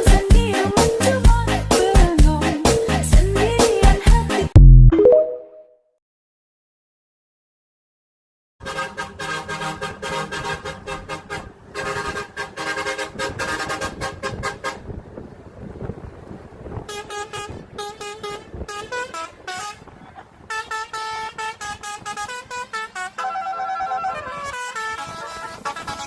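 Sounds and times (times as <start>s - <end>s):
truck musical air horn: 8.6s - 15.0s, 16.9s - 26.0s.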